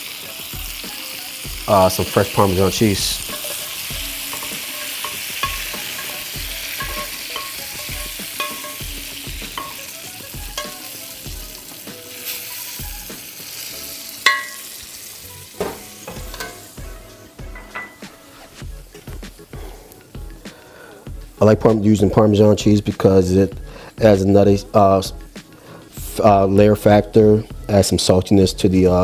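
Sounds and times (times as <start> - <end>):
food sizzling in a pan: 0.0 - 29.0
soft regular beat: 0.6 - 12.1, 15.6 - 21.8, 22.6 - 27.8.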